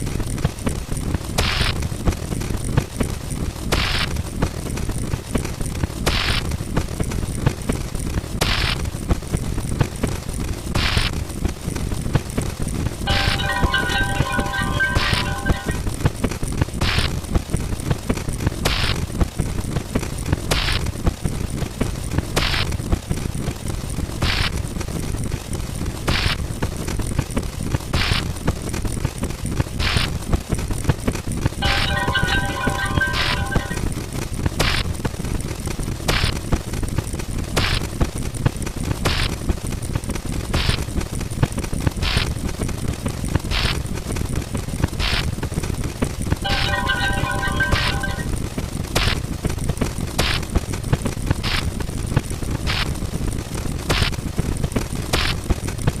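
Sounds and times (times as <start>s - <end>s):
rapid gunfire cracks: 0.0s - 2.8s, 3.6s - 10.1s, 36.0s - 42.6s, 53.6s - 56.0s.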